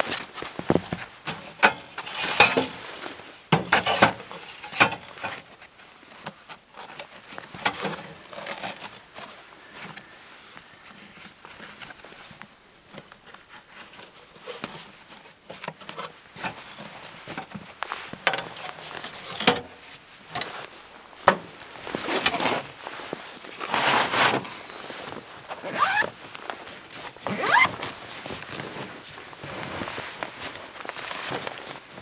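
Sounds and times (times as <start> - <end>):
zipper pulled: 23.6 - 24.5, 25.6 - 26.2, 27.2 - 28.0.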